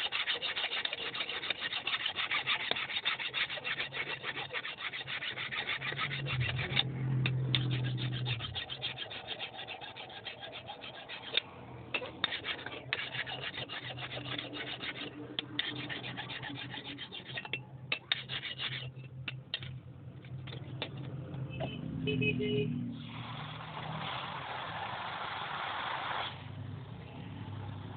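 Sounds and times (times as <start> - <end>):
hand tool rasping on steel: 0.0 - 19.7, 20.4 - 21.1.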